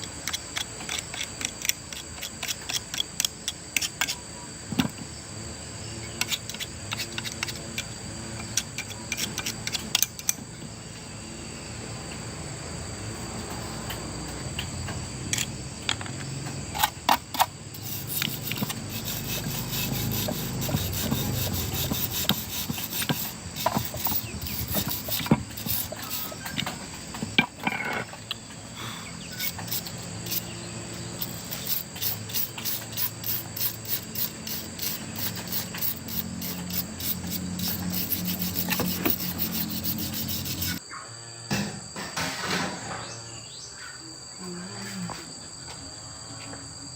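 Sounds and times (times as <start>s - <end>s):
high insect-like drone: 5.2s - 41.8s
hand tool clicks and knocks: 16.8s - 28.4s, 31.2s - 40.8s.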